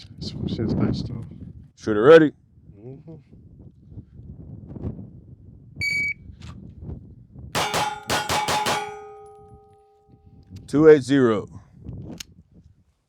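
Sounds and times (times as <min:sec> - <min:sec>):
rapid pistol shots: 0:07.6 - 0:09.6
metallic ringing: 0:07.6 - 0:10.3.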